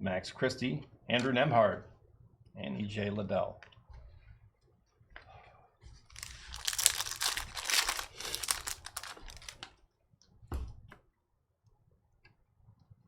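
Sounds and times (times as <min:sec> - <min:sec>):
foil wrapper crinkling and tearing: 0:06.1 - 0:09.7
cards clicking: 0:06.2 - 0:09.7.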